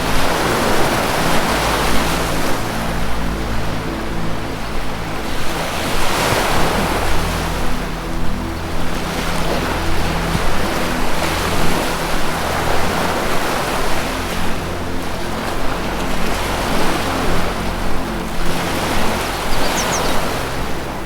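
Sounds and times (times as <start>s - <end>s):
low sustained musical notes: 0.0s - 21.0s
ocean surf washing: 0.0s - 21.0s
bird chirp: 19.4s - 20.4s.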